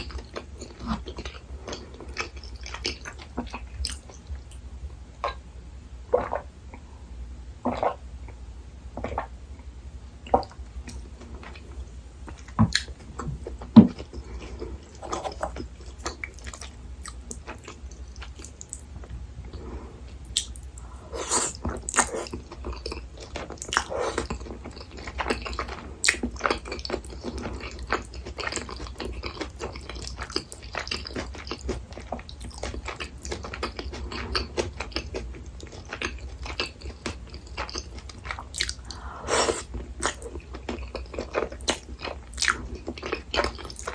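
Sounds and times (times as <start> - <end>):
chewing and biting: 20.3 - 43.9.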